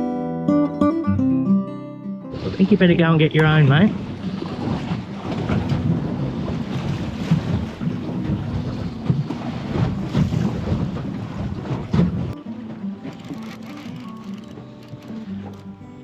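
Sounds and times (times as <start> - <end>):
waves washing around hull: 2.3 - 16.0
wind buffeting microphone: 3.6 - 12.4.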